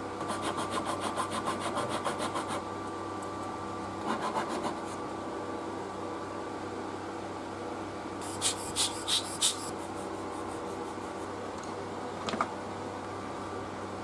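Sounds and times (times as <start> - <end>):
steady hum: 0.0 - 14.0
short scraping strokes: 8.2 - 10.7.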